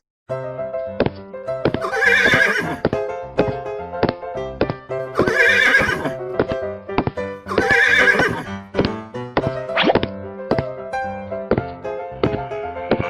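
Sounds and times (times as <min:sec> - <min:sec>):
upbeat background music: 0:00.8 - 0:13.0
horse whinny: 0:01.8 - 0:02.8, 0:05.2 - 0:06.2, 0:07.5 - 0:08.5.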